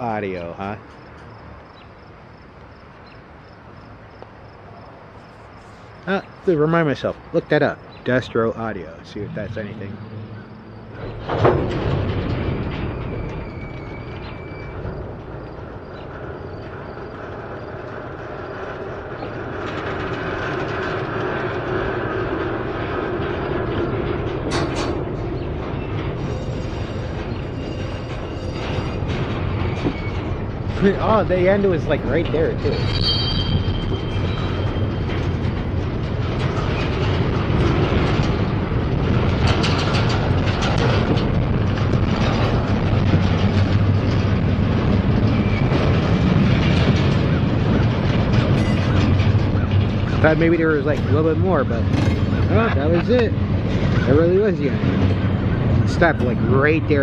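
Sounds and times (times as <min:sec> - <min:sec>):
freight train wheels rumbling: 0:00.0 - 0:57.0
steady hum: 0:05.2 - 0:12.8
train wheels clacking: 0:06.0 - 0:57.0.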